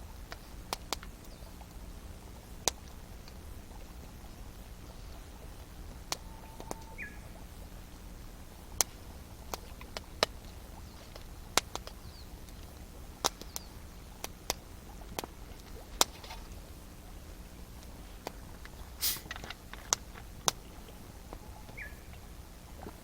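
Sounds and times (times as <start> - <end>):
campfire crackling: 0.0 - 23.0
sharp pops of burning wood: 16.0 - 16.4, 18.2 - 20.7.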